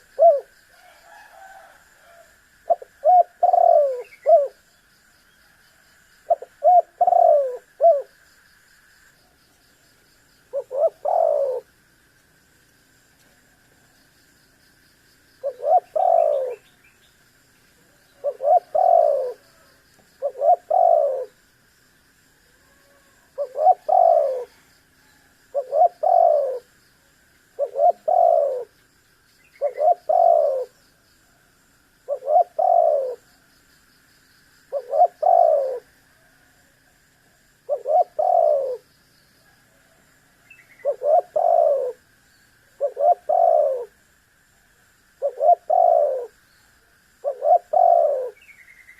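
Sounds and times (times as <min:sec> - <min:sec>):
dove cooing: 0:00.0 - 0:04.6, 0:06.3 - 0:08.2, 0:10.5 - 0:11.7, 0:15.4 - 0:16.8, 0:17.9 - 0:21.4, 0:22.6 - 0:26.7, 0:27.6 - 0:28.8, 0:29.6 - 0:30.8, 0:32.0 - 0:33.3, 0:34.7 - 0:35.9, 0:37.6 - 0:38.9, 0:40.6 - 0:42.0, 0:42.8 - 0:44.0, 0:45.2 - 0:46.4, 0:47.2 - 0:48.6.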